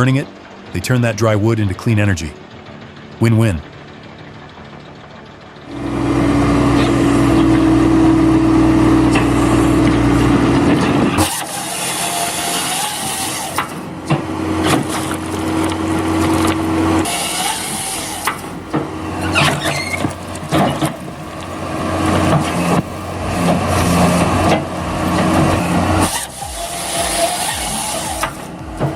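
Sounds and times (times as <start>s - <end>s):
large engine running: 0.0s - 28.9s
clanks and knocks: 13.0s - 28.9s.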